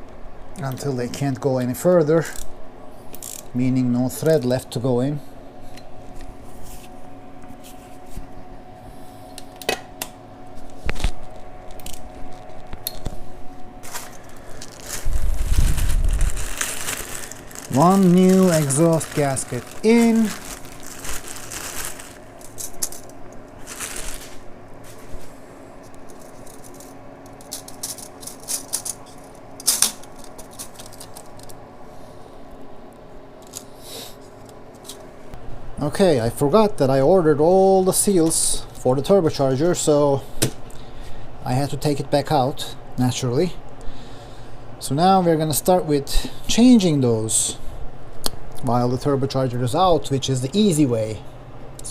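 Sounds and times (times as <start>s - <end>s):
faint steady hum: 0.0s - 51.9s
metal tools clicking and rattling: 26.1s - 31.6s.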